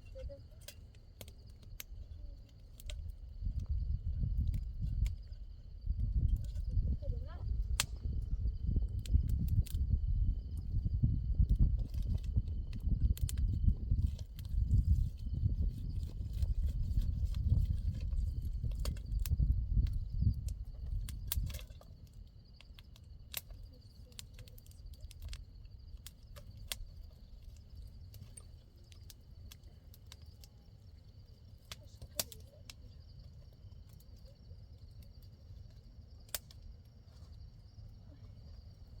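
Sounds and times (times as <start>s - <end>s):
insects chirring: 0.0s - 39.0s
small clicks and snaps: 0.1s - 5.3s, 7.6s - 9.9s, 11.4s - 37.0s
wind buffeting microphone: 2.8s - 21.8s.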